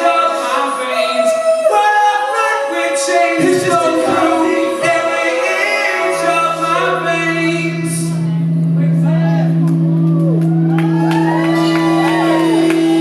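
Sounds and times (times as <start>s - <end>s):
voices singing together: 0.0s - 8.2s
live rock band: 9.5s - 13.0s.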